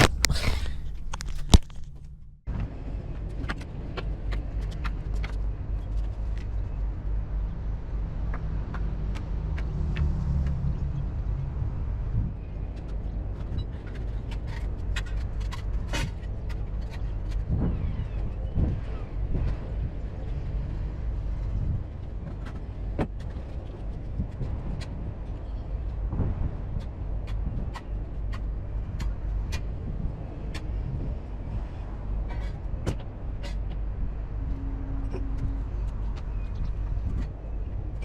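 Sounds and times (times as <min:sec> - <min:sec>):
sharp clicks and rattles: 0:00.0 - 0:02.4
lorry diesel engine rumbling: 0:00.0 - 0:02.5.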